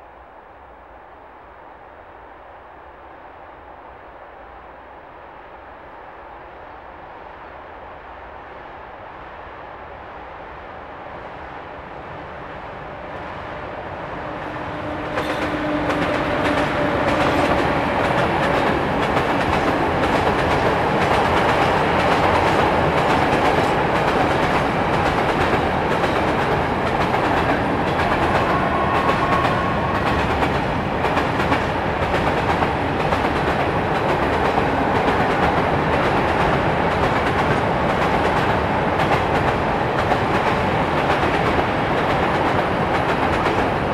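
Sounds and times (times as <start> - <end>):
freight train rolling past: 11.0 - 43.9
wheels clickety-clack on rail joints: 14.2 - 43.9.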